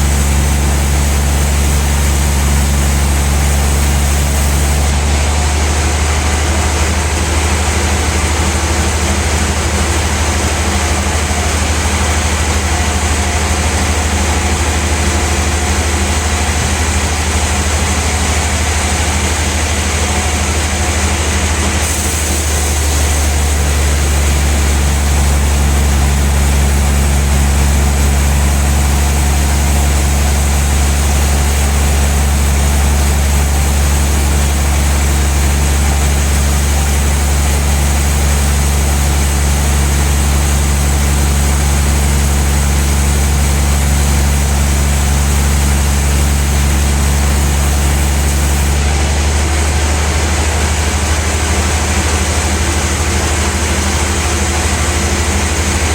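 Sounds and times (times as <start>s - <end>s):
saw blade hiss: 0.0s - 4.9s, 21.8s - 48.8s
sawmill machine drone: 0.0s - 55.9s.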